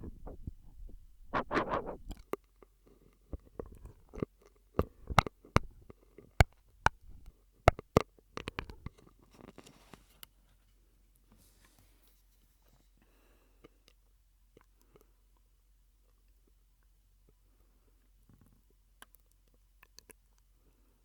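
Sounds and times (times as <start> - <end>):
mouth clicks and pops: 0.0 - 2.2, 3.4 - 4.2, 4.8 - 8.9
wet mouth noises through straw: 0.0 - 2.2.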